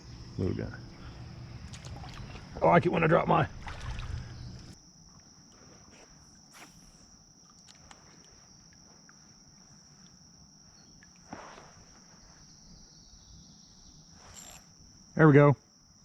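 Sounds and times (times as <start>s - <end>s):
high-pitched insect chorus: 0.0s - 16.0s
faint ticks: 9.9s - 10.2s.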